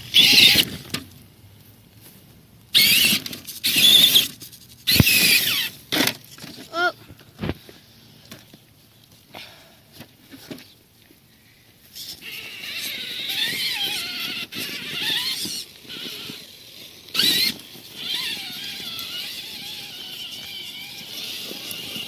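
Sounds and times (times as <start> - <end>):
electric motor and gearbox whining: 0.0 - 1.2, 2.7 - 7.6, 11.9 - 22.0.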